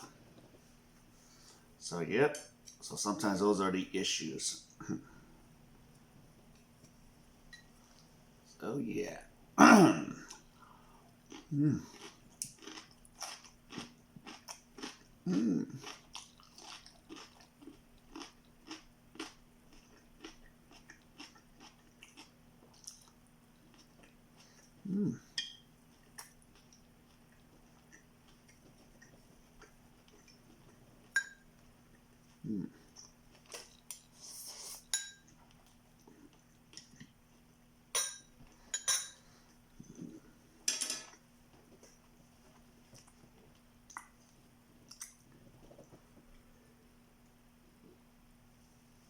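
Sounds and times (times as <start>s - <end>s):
faint steady hum: 0.0s - 49.0s
person chewing food: 10.2s - 37.5s
cutlery clinking on a plate: 38.0s - 39.2s, 40.7s - 41.2s.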